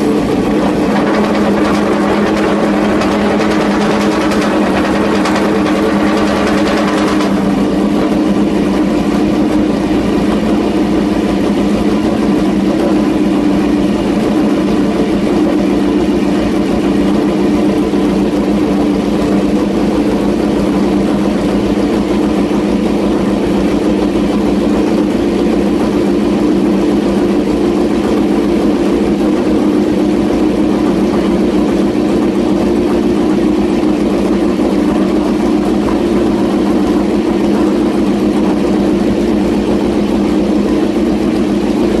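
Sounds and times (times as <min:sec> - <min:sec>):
motorcycle engine running steadily: 0:00.0 - 0:42.0.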